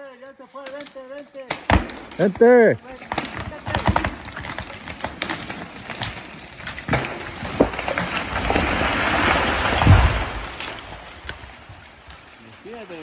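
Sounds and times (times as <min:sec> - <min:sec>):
wood cracking and splintering: 0:00.6 - 0:13.0
tree trunk thudding on ground: 0:01.5 - 0:12.2
branches rushing through air: 0:05.4 - 0:13.0.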